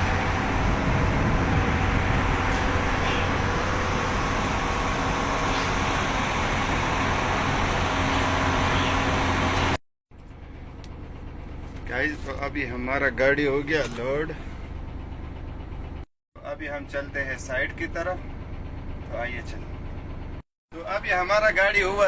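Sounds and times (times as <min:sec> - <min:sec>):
concrete plant machinery noise: 0:00.0 - 0:09.8
diesel engine hum: 0:00.0 - 0:22.0.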